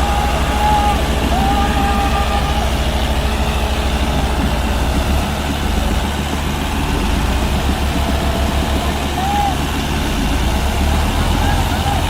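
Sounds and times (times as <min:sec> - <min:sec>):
diesel tractor engines throbbing: 0:00.0 - 0:12.0.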